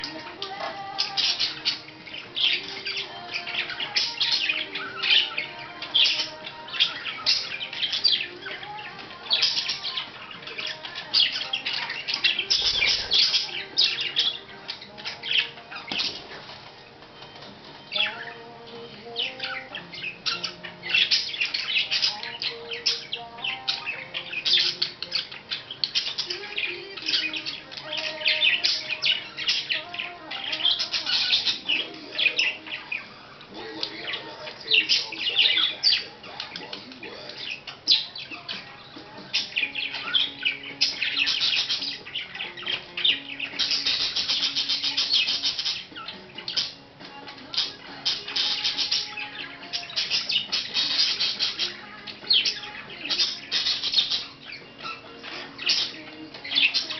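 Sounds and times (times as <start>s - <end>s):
budgerigar chattering and warbling: 0.0s - 16.3s, 19.1s - 56.9s.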